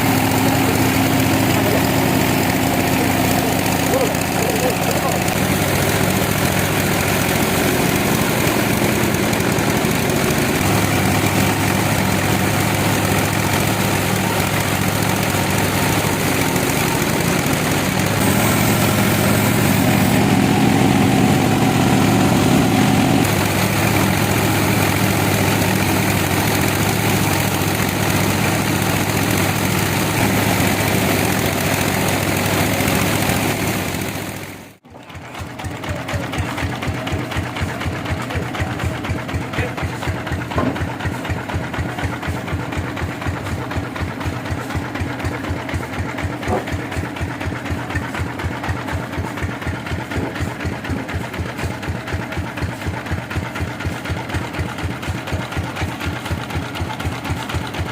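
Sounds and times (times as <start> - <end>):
fast even pulsing: 0.0 - 34.8
sawmill engine running: 0.0 - 57.9.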